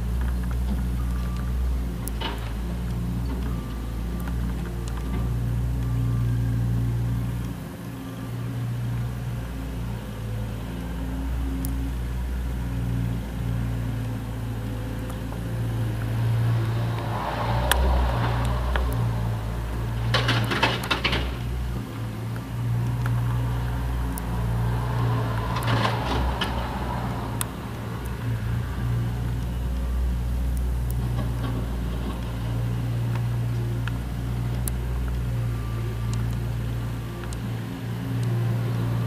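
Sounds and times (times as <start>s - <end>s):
loader engine running: 0.0s - 39.0s.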